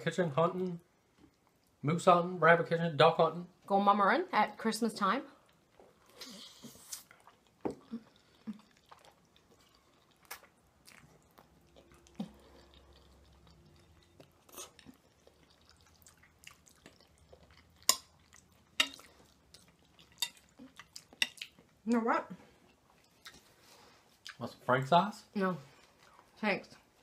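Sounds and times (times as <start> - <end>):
wet chewing mouth clicks: 5.4 - 21.8.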